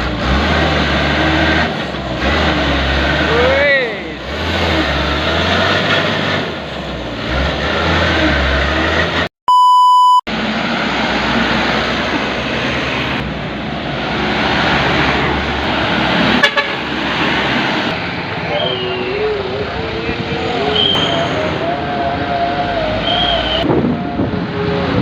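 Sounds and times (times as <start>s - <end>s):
diesel truck engine running: 0.0s - 9.3s
electronic beep: 9.5s - 10.3s.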